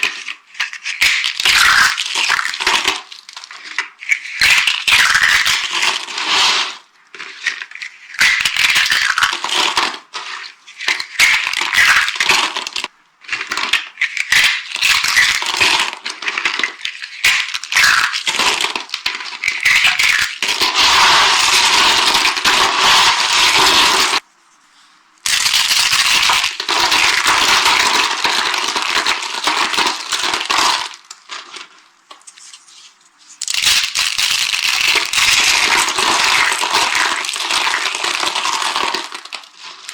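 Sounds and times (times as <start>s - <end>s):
dry soap being crushed: 0.0s - 6.0s, 7.2s - 24.2s.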